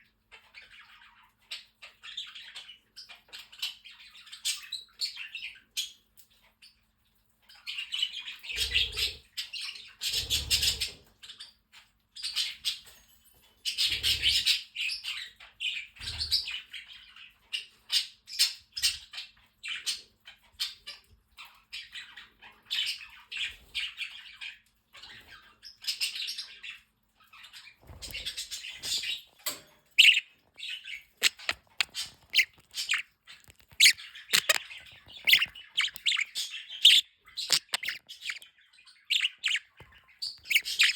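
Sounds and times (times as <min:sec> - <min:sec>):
parrots chattering and chirping: 0:07.5 - 0:12.9, 0:13.6 - 0:40.9
parrot squawks: 0:30.0 - 0:30.3, 0:31.2 - 0:38.4, 0:39.0 - 0:39.7, 0:40.4 - 0:40.9.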